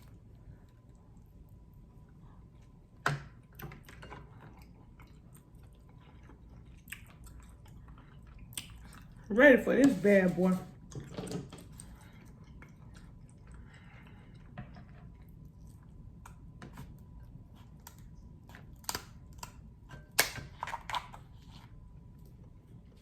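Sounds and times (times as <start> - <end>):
crab shell cracking by hand: 17.6 - 21.2.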